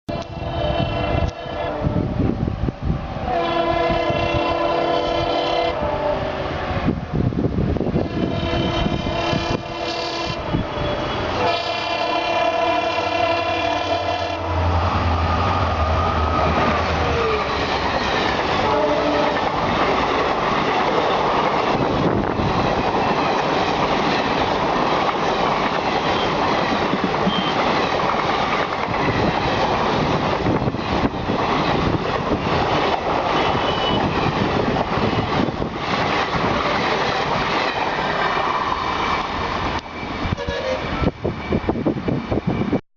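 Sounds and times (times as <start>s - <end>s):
hoarse locomotive horn: 0.1s - 2.2s, 3.2s - 6.7s, 7.9s - 19.6s, 27.2s - 27.8s, 33.2s - 34.3s, 40.3s - 41.2s.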